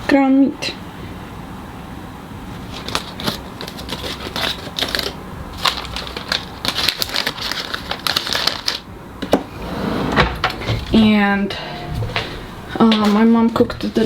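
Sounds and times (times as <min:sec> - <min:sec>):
packaging crinkling: 0:02.7 - 0:09.4.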